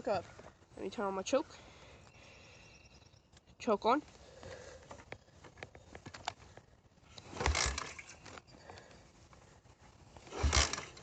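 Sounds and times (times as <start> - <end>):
engine cranking: 7.2 - 8.9, 10.2 - 11.0.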